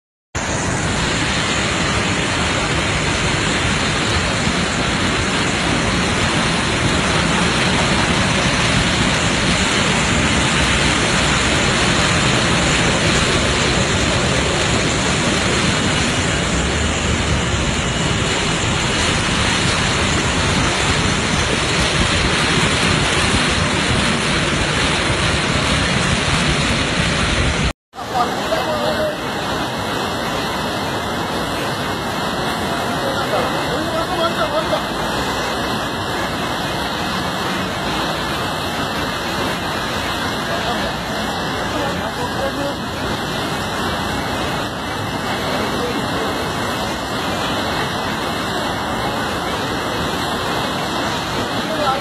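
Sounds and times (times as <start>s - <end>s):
wind on microphone: 0.4s - 27.7s
heavy rain: 0.4s - 52.0s.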